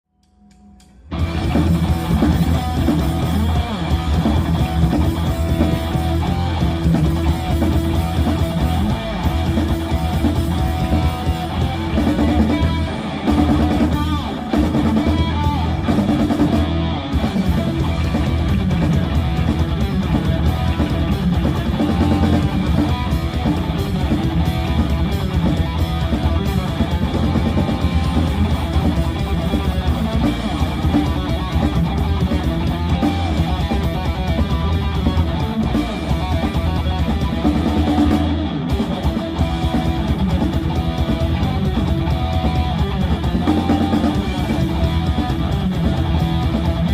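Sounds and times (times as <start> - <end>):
distorted electric guitars: 0.3 - 46.9
drum kit: 0.3 - 46.9
bass guitar: 0.8 - 46.9.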